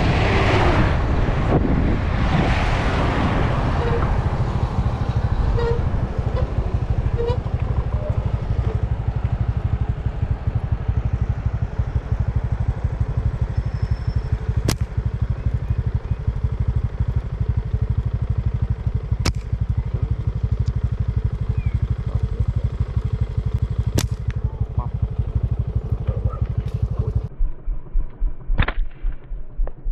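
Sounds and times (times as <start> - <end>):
small engine idling: 3.8 - 27.3
sharp snaps: 14.6 - 15.0, 19.2 - 19.5, 23.8 - 24.4.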